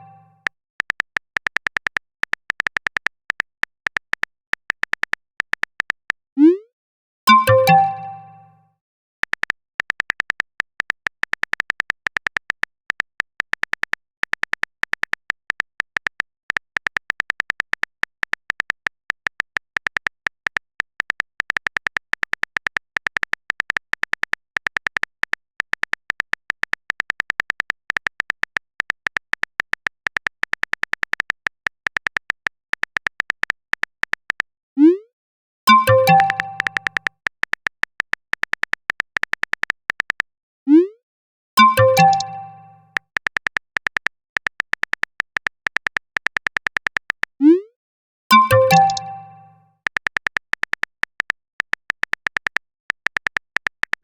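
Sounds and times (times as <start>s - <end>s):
keyboard typing clicks: 7.3s - 8.5s, 9.2s - 34.5s, 35.7s - 40.3s, 41.6s - 47.7s, 48.3s - 54.0s.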